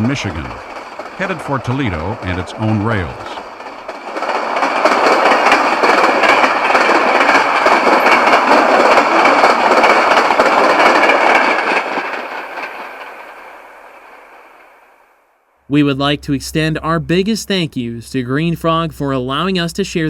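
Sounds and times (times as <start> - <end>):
freight train wheels clattering: 0.0 - 14.6.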